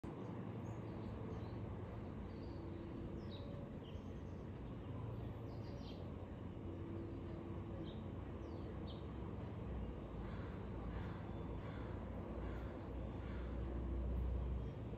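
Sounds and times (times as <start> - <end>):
low outdoor rumble: 0.0 - 14.9.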